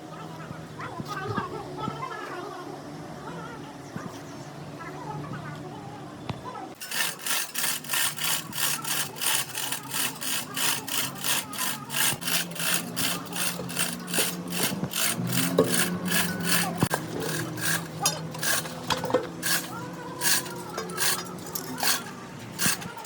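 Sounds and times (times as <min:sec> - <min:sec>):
hand tool scraping on metal: 0:06.8 - 0:23.0.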